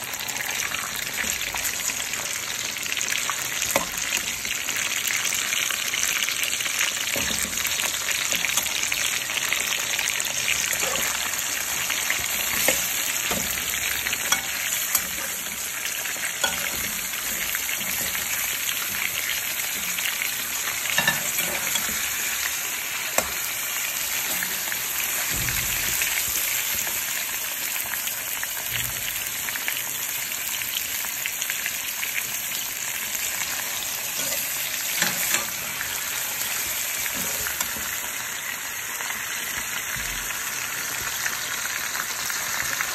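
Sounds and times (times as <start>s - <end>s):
chicken sizzling in hot oil: 0.0s - 42.9s
spatula clicking and scraping pan: 3.6s - 4.3s, 7.1s - 9.2s, 10.0s - 25.2s, 34.1s - 38.0s.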